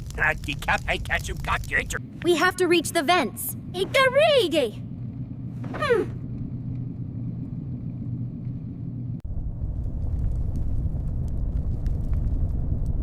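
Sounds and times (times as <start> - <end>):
deeper rumble: 0.0 - 13.0
low rumble with faint hum: 0.0 - 13.0.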